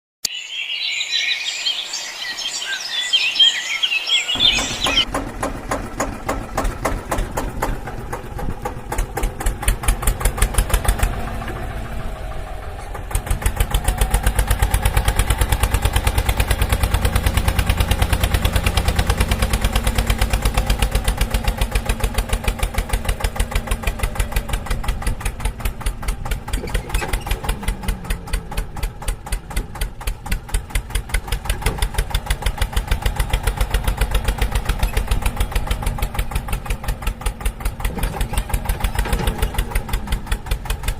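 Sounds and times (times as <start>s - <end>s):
engine running with rapid pulsing: 2.5s - 40.9s.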